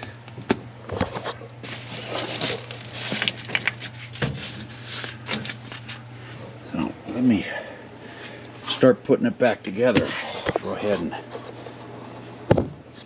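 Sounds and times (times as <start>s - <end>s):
insulation rustling and crinkling: 0.2s - 7.3s, 9.8s - 13.0s.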